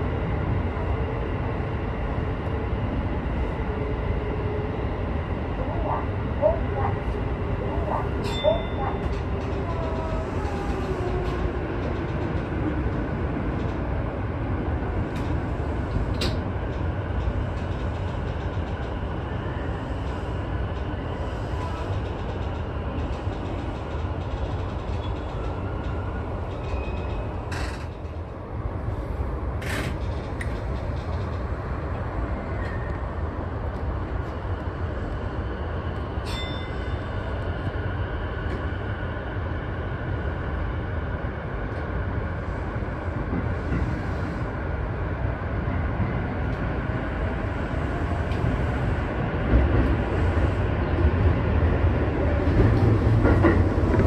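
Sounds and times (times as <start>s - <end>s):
train low rumble: 0.0s - 54.0s.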